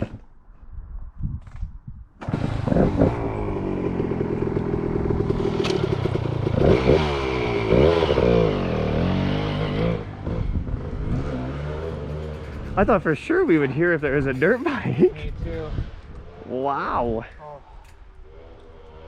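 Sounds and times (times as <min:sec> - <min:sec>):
dirt bike engine revving: 0:02.2 - 0:15.0.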